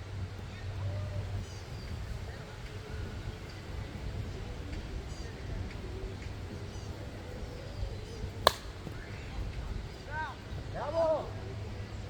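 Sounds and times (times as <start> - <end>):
wiffle ball impact knock: 8.4 - 9.3.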